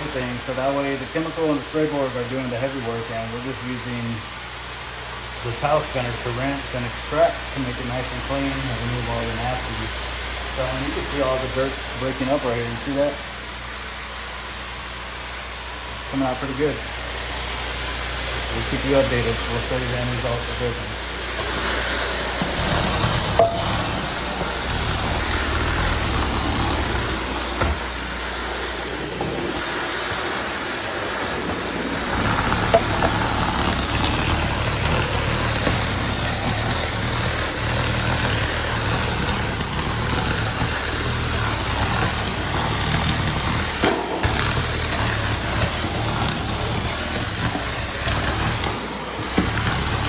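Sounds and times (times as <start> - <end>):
cleaning machine droning: 0.0 - 50.0
vacuum suction rushing: 16.7 - 50.0.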